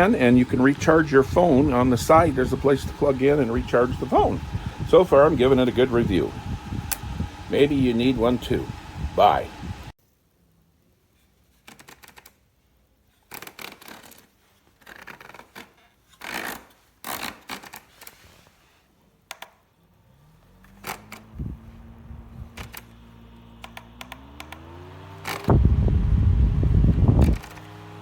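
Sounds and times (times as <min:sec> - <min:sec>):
electric fan motor humming: 0:00.0 - 0:10.0, 0:20.5 - 0:28.0
handling clicks and scraping: 0:25.2 - 0:25.5.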